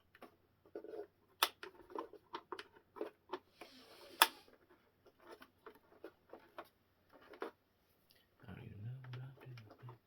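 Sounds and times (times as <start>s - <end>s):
small parts clicking and tapping: 0.0s - 7.6s.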